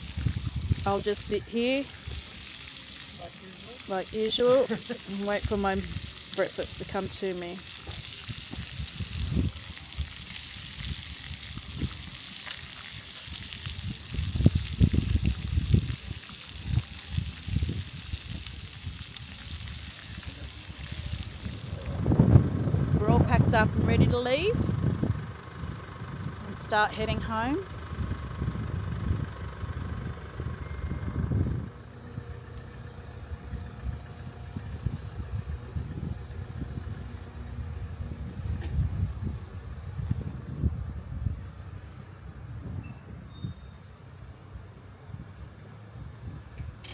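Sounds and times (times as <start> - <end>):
food sizzling in a frying pan: 0.0 - 22.2
low rumbles: 0.0 - 43.3.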